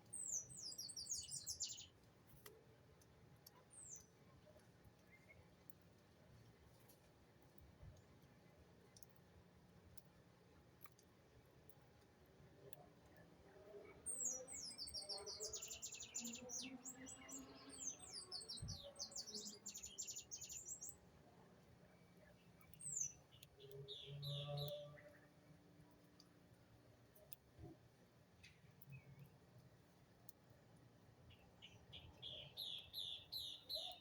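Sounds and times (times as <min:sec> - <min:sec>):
songbird chirping: 0:00.0 - 0:02.0, 0:13.6 - 0:21.1, 0:21.9 - 0:26.3, 0:31.2 - 0:34.0.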